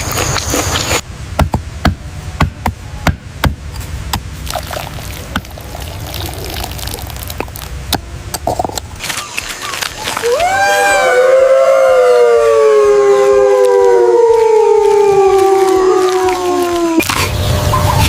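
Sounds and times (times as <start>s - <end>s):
noisy sound: 5.1s - 18.0s.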